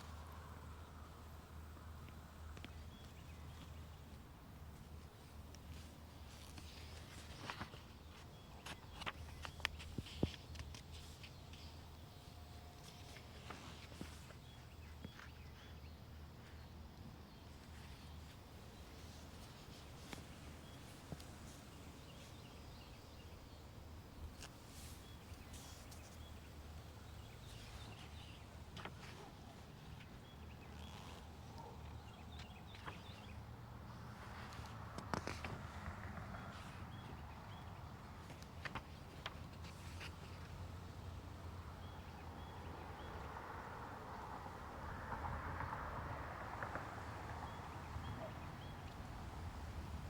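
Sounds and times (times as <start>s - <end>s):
small clicks and rustles: 2.0s - 15.6s, 24.2s - 33.3s, 34.3s - 37.2s, 38.1s - 40.8s
low wind rumble: 40.6s - 50.0s.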